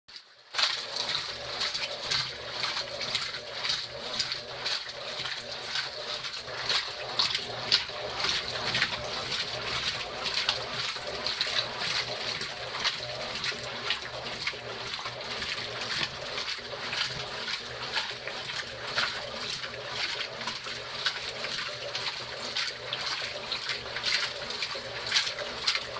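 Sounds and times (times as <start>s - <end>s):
laundry sloshing in washing machine: 0.1s - 25.9s
washing machine motor hum: 0.1s - 25.9s.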